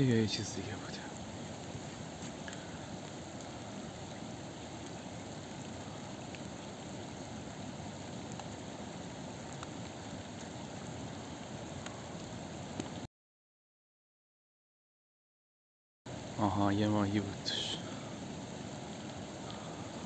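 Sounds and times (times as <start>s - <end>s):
rushing water: 0.0s - 13.1s, 16.1s - 20.0s
faint ticks: 2.2s - 3.6s, 8.3s - 8.6s, 9.5s - 10.5s, 11.8s - 12.1s, 12.7s - 13.0s, 19.4s - 19.8s.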